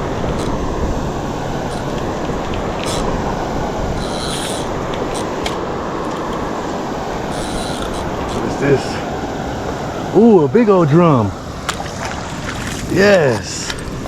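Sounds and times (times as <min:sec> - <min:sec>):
reel clicking: 0:00.0 - 0:10.3, 0:11.4 - 0:14.0
fishing reel ratcheting whir: 0:00.0 - 0:10.4
waterfall rushing: 0:00.0 - 0:14.0.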